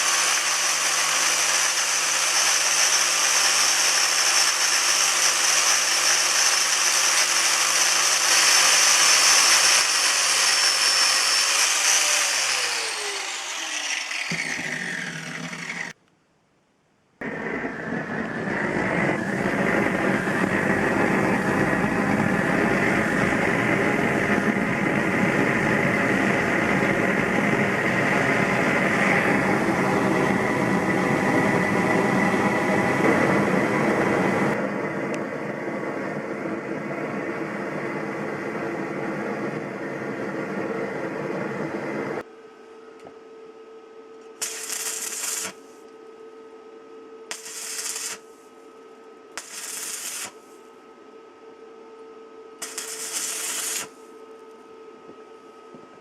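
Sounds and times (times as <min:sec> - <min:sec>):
welding arc crackling: 0:00.0 - 0:16.0, 0:44.4 - 0:45.7, 0:47.3 - 0:48.4, 0:49.4 - 0:50.4, 0:52.6 - 0:54.0
steady hum: 0:12.6 - 0:56.0.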